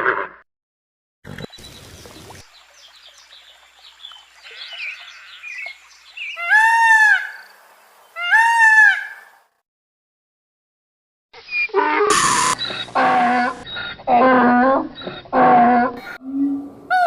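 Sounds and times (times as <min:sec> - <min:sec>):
small birds chirping: 0:01.3 - 0:06.5, 0:12.4 - 0:13.0
drawn-out animal calls: 0:11.8 - 0:17.0.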